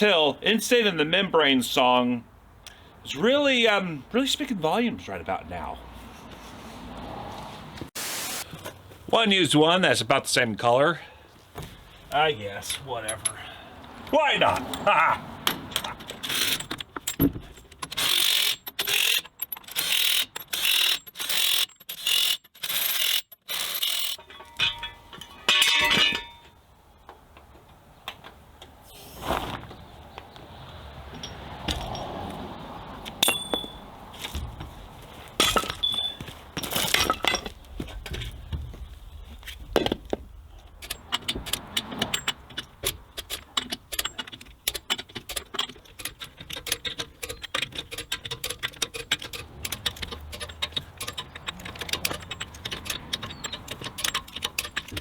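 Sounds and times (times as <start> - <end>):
metallic clicks and clanks: 12.6 - 26.6, 40.6 - 55.0
impact wrench rattling bursts: 14.1 - 24.9, 40.8 - 55.0.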